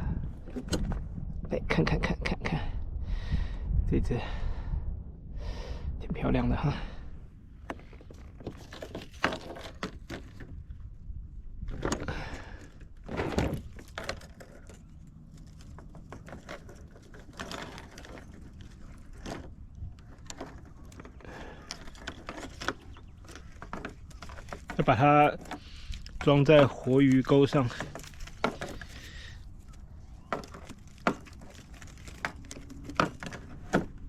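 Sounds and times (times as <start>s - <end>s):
loud rustling: 11.7s - 34.0s
knocks and clicks on a kayak: 15.5s - 34.0s.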